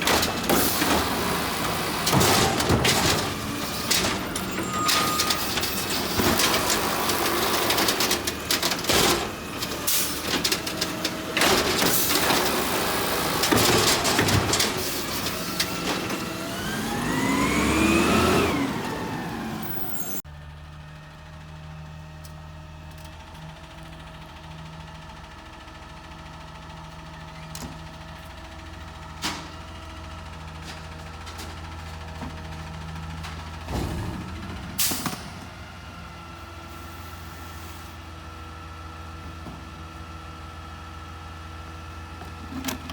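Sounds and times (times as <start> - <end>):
garbage truck clanks and knocks: 0.0 - 20.2, 26.0 - 36.7, 38.8 - 40.2
truck engine revving: 0.0 - 20.2.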